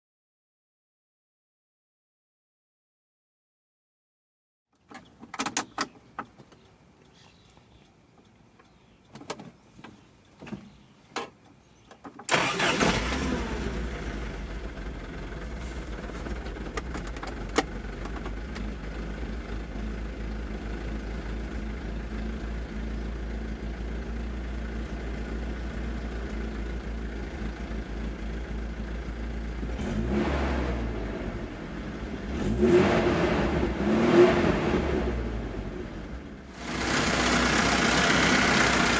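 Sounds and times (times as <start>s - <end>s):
car engine starting and idling: 12.2s - 38.9s
car engine revving: 12.3s - 17.3s, 29.6s - 38.9s.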